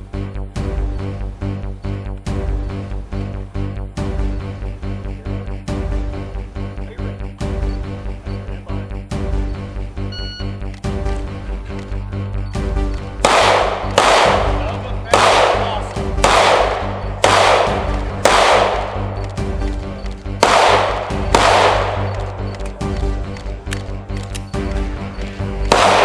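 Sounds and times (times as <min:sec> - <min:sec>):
background music with low notes: 0:00.0 - 0:26.0
gunshots with ringing tail: 0:13.2 - 0:19.4, 0:20.4 - 0:22.4, 0:25.7 - 0:26.0.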